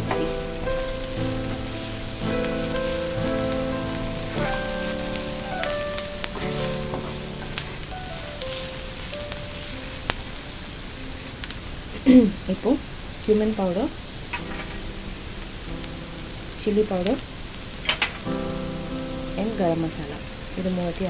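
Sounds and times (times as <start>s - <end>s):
background music of held notes: 0.0s - 11.5s, 18.0s - 21.0s
onions sizzling in hot oil: 0.0s - 21.0s.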